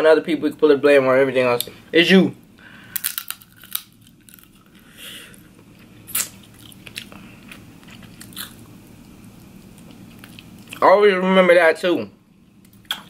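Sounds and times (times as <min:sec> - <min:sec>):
person chewing: 0:02.9 - 0:10.8.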